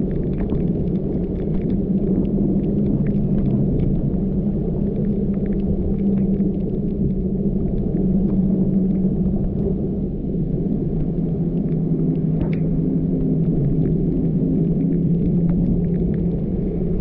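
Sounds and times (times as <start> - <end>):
faint light ticks: 0.1 - 9.8.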